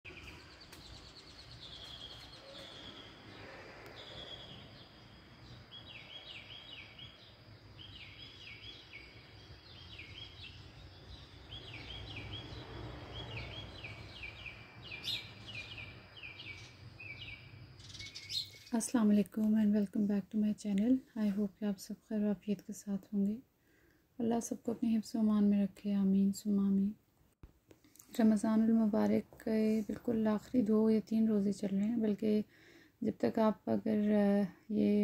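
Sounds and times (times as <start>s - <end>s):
birds chirping: 0.1s - 20.0s.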